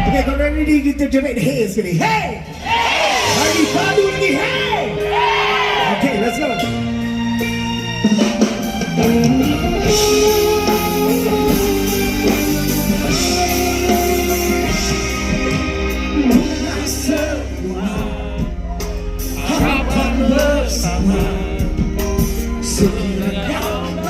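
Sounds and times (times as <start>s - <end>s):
live band playing pop-rock: 2.4s - 24.0s
person singing: 9.8s - 24.0s.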